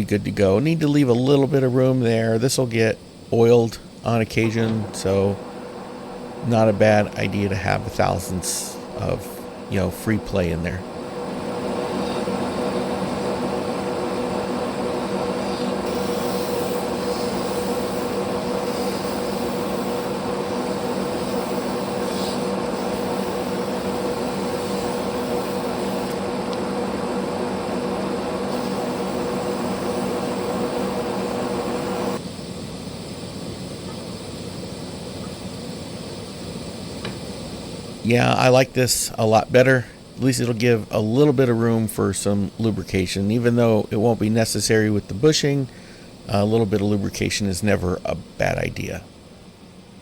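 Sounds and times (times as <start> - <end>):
faint background hum: 0.0 - 50.0
metal lathe running: 3.5 - 32.2.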